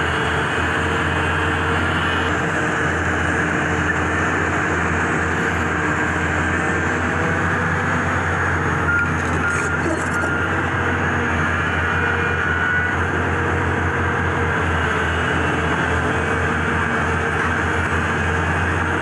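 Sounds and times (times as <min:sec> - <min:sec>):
heavy diesel machinery running: 0:00.0 - 0:19.0
reversing alarm beeps: 0:08.8 - 0:10.6.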